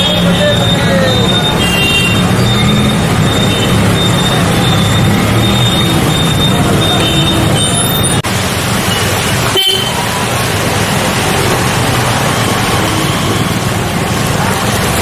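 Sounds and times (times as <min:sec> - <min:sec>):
car horn toots: 0:00.0 - 0:08.2, 0:09.5 - 0:10.0
street traffic noise: 0:00.0 - 0:15.0.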